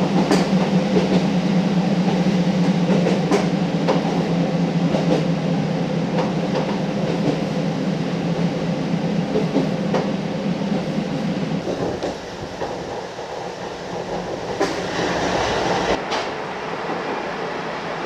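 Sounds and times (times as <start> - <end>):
wheels clicking over rail joints: 0.1 - 1.3, 2.9 - 4.2, 11.6 - 16.3.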